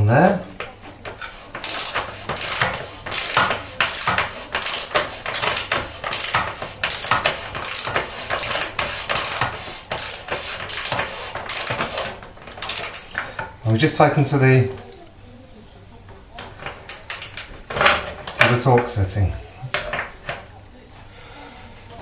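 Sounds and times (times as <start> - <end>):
torque wrench ratchet clicking: 1.6 - 9.4, 10.0 - 11.9, 12.6 - 13.1.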